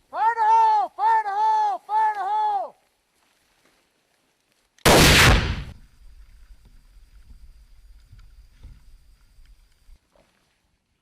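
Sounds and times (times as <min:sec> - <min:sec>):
mortar blast: 0:04.9 - 0:05.8.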